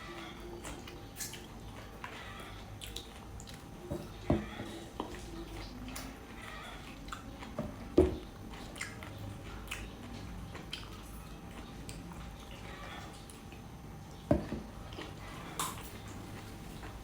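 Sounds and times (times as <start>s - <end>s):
person chewing pineapple: 0.0s - 17.0s.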